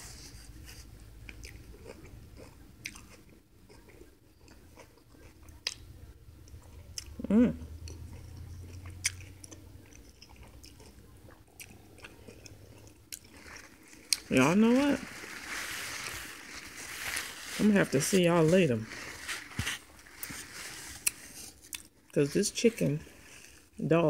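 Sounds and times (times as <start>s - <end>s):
person chewing: 0.2s - 23.7s
person humming: 7.2s - 7.7s.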